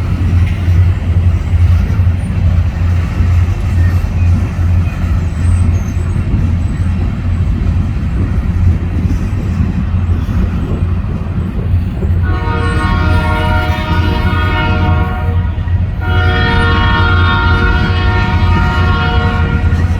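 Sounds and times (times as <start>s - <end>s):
diesel locomotive rumbling: 0.0s - 19.9s
locomotive air horn: 12.2s - 19.9s.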